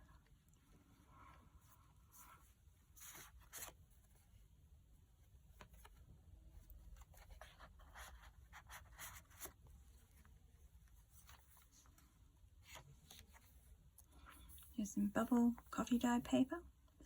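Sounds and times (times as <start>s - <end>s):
paper pages rustling and turning: 1.6s - 4.5s, 5.2s - 14.8s.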